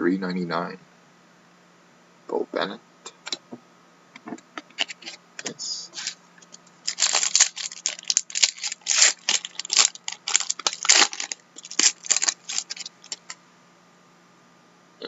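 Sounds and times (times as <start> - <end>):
trading cards rustling and clicking: 6.0 - 13.4.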